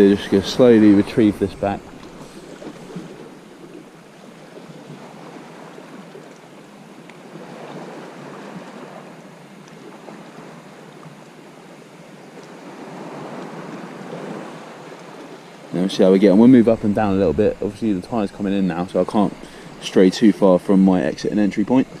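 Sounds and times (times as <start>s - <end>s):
sea waves washing on shore: 0.0s - 22.0s.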